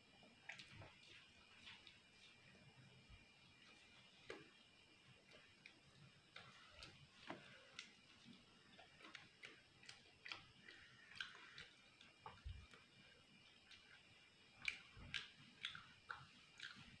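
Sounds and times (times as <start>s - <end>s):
chewing crisp food: 0.2s - 2.6s, 5.2s - 17.0s.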